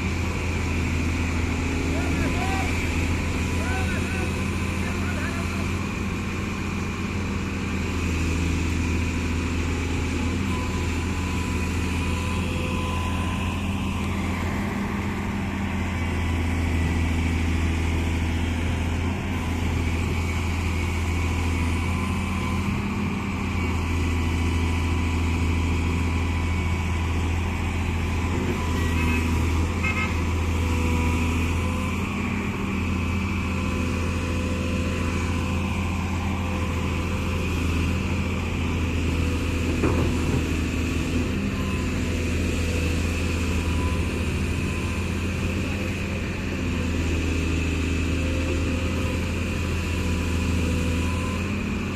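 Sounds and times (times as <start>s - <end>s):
excavator diesel engine droning: 0.0s - 51.9s.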